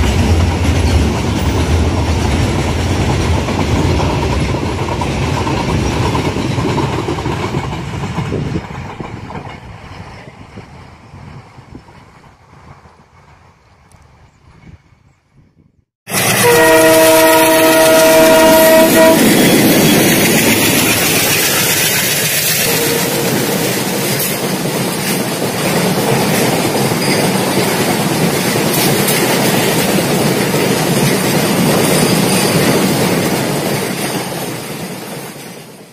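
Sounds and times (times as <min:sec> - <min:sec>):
train rumble and wheel clatter: 0:00.0 - 0:15.2, 0:16.1 - 0:35.9
locomotive horn chord: 0:16.1 - 0:19.3, 0:22.6 - 0:23.7.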